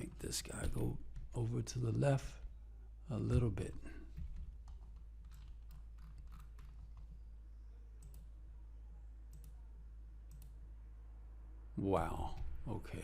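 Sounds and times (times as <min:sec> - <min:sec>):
steady low hum: 0:00.0 - 0:13.0
mouse and keyboard clicking: 0:04.7 - 0:07.2.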